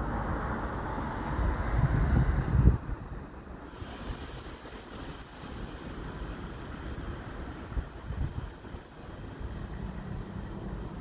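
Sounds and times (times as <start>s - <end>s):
freight train rumbling: 0.0s - 11.0s
faint high whine: 3.7s - 11.0s.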